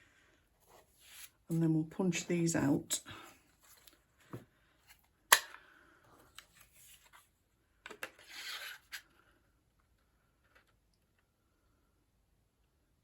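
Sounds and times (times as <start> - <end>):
papery scrape: 8.2 - 9.0.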